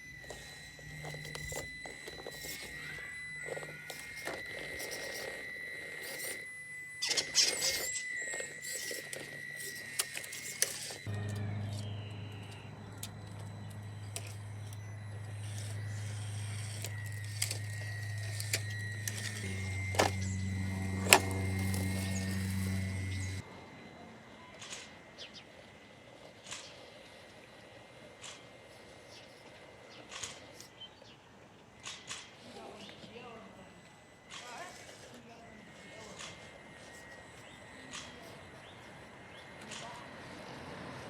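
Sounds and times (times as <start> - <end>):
low hum: 0.0 - 24.7
toy car motor whine: 0.0 - 41.0.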